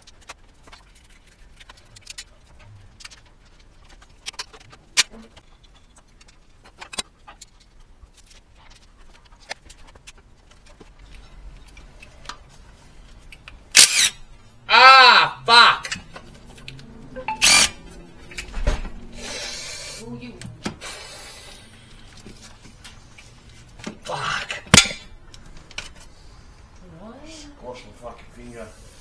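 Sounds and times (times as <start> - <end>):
metal tools clicking and clinking: 24.7 - 25.1.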